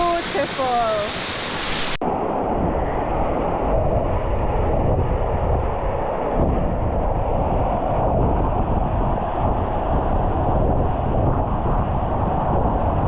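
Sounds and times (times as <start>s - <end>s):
waterfall rushing: 0.0s - 2.0s
wind buffeting microphone: 2.1s - 13.0s.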